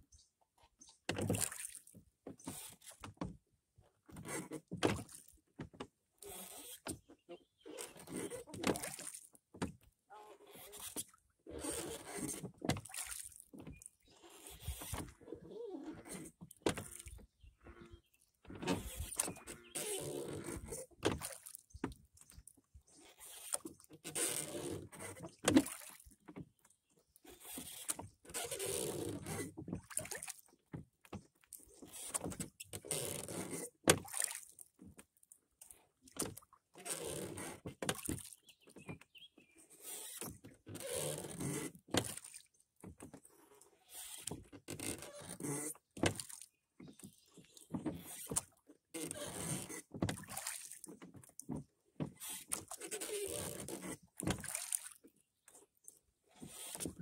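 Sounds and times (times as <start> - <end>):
oars swishing through water: 0.0 - 57.0.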